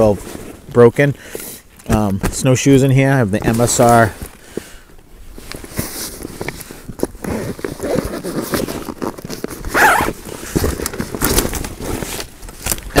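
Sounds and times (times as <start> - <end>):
zipper opening: 7.2 - 12.1.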